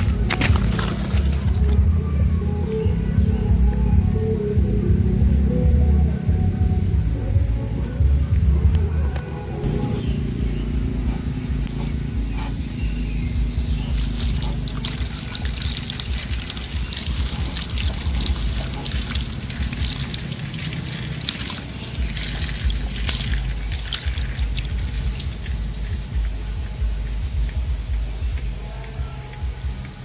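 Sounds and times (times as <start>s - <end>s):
water trickling and splashing: 0.0s - 1.8s, 13.6s - 26.7s
steady low hum: 0.0s - 30.0s.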